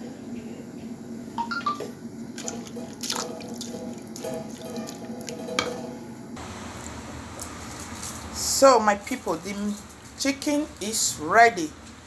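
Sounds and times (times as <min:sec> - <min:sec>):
water splashing and dripping: 0:02.4 - 0:05.5.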